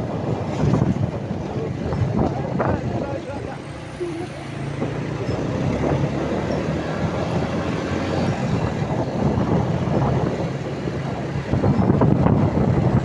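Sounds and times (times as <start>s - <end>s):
truck engine drone: 0.0s - 13.0s.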